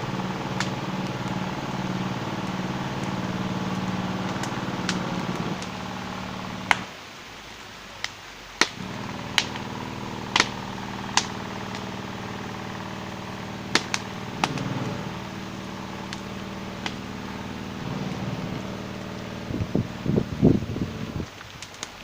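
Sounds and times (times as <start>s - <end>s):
low hum: 0.0s - 6.9s, 8.8s - 21.3s
campfire crackling and popping: 0.0s - 7.0s, 7.6s - 22.0s.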